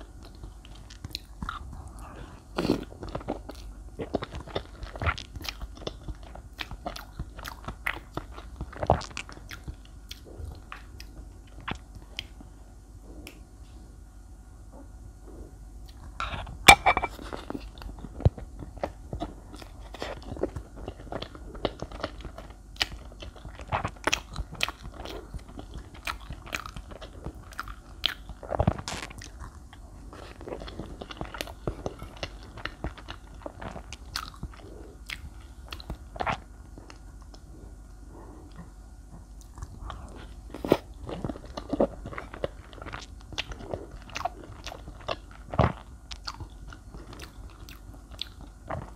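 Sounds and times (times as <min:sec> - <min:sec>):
wet chewing mouth sounds: 0:00.0 - 0:12.4, 0:15.8 - 0:48.9.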